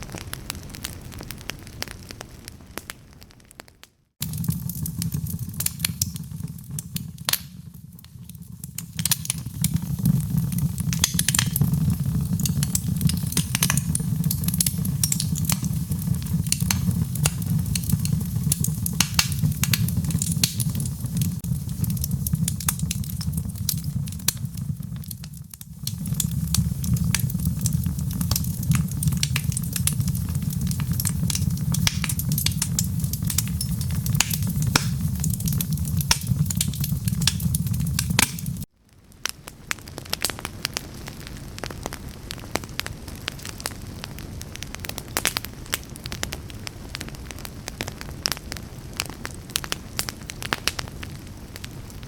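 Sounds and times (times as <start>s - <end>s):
low rumble of flames: 0.0s - 52.0s
wood fire crackling and popping: 0.0s - 52.0s.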